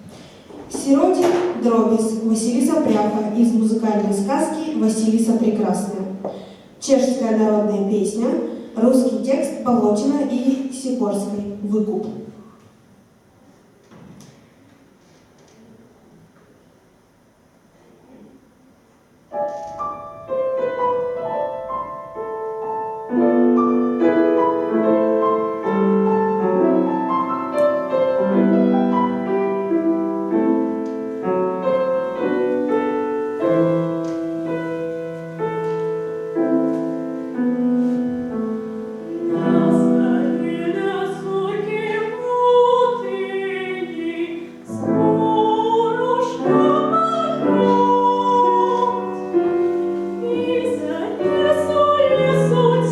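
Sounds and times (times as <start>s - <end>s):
piano playing: 19.3s - 52.9s
woman singing with vibrato: 39.0s - 49.4s, 50.1s - 52.9s.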